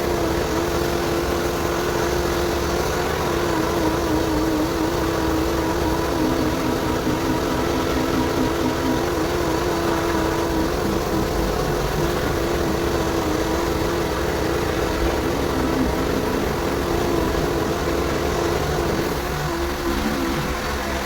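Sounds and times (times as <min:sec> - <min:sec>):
motor humming: 0:00.0 - 0:21.0.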